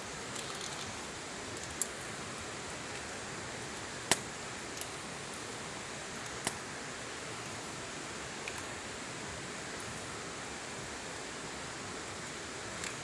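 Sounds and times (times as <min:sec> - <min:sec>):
campfire hiss: 0:00.0 - 0:13.0
campfire pops: 0:04.0 - 0:05.0, 0:06.2 - 0:06.6.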